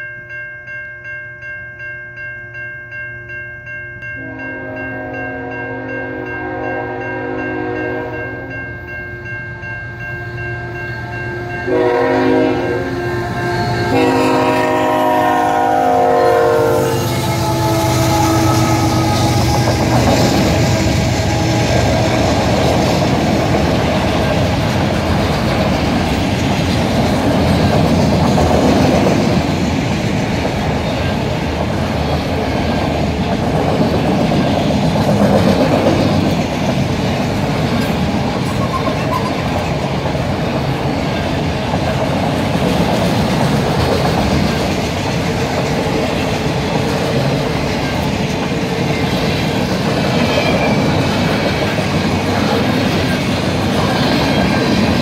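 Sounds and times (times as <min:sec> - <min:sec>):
crossing bell ringing: 0:00.0 - 0:28.3, 0:36.0 - 0:42.0
train horn blasts: 0:04.2 - 0:08.5, 0:10.2 - 0:22.5
train wheels clattering on rails: 0:11.7 - 0:55.0.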